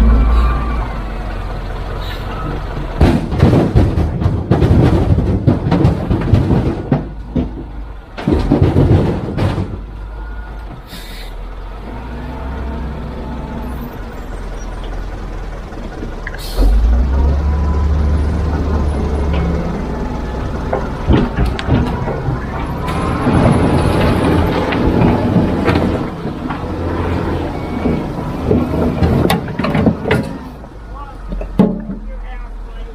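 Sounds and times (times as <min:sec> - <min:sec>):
diesel engine running: 0:00.0 - 0:32.9
machinery crashing and rattling: 0:02.5 - 0:10.1, 0:15.0 - 0:30.7.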